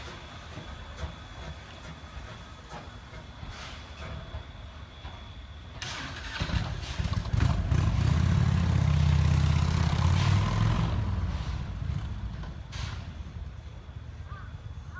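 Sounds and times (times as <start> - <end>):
vehicle engine passing by: 6.4 - 12.3.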